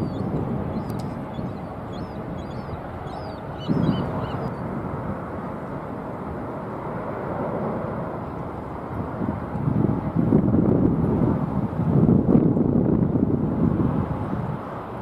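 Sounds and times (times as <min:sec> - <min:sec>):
small birds chirping: 0:00.0 - 0:04.6
jet airliner engine: 0:00.0 - 0:15.0
wind gust on microphone: 0:00.0 - 0:15.0.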